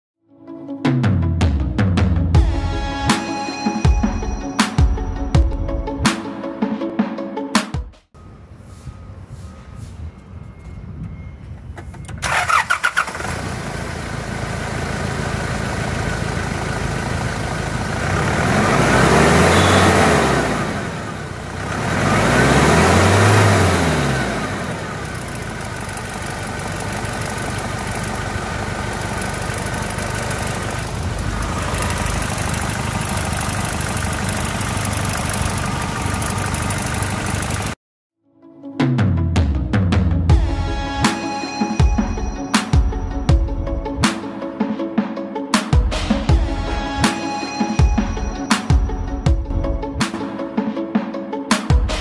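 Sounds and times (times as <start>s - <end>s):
diesel engine cranking and idling: 11.5s - 37.8s
engine revving: 12.2s - 37.8s.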